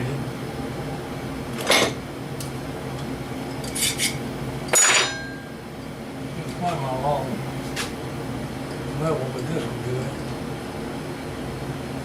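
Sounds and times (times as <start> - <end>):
steady low hum: 0.0 - 12.0
hardware scraping on workbench: 3.7 - 4.2.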